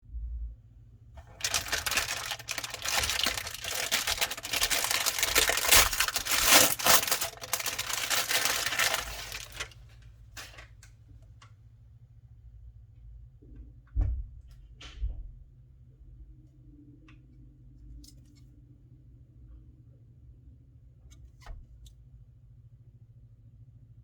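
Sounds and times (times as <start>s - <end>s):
packaging crinkling and tearing: 1.2s - 9.8s
rustles and clicks: 1.2s - 9.8s.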